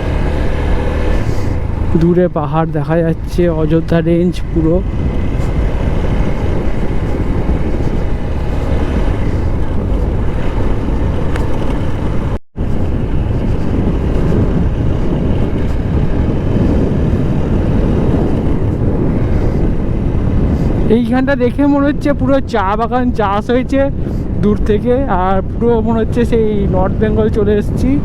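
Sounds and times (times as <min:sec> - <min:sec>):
motorcycle engine: 0:00.0 - 0:22.4
road noise: 0:00.0 - 0:28.0
wind over microphone: 0:00.0 - 0:28.0.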